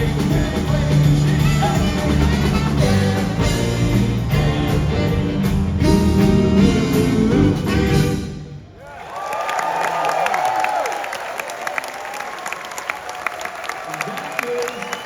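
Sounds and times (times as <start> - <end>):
live band sustained chords: 0.0 - 8.7.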